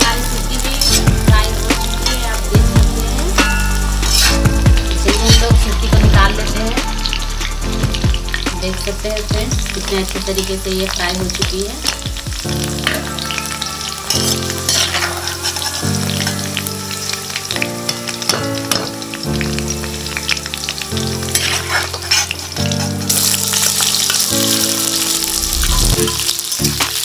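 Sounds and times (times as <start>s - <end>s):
background music with chords: 0.0s - 27.0s
vegetable pieces sizzling in oil: 0.0s - 27.0s
metal ladle stirring: 0.6s - 1.2s, 3.4s - 4.6s, 12.8s - 16.6s, 21.3s - 24.4s.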